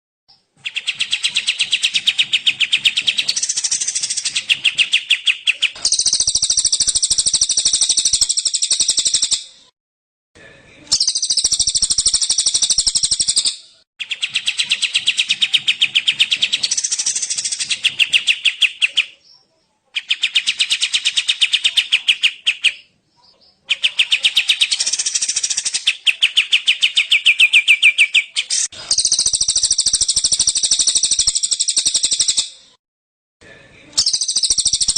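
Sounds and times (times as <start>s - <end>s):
songbirds trilling: 0.6s - 9.1s.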